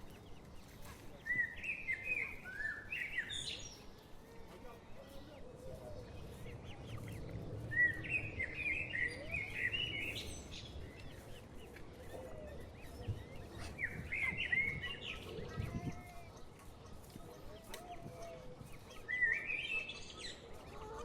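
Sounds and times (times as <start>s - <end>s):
songbird chirping: 0.0s - 21.0s.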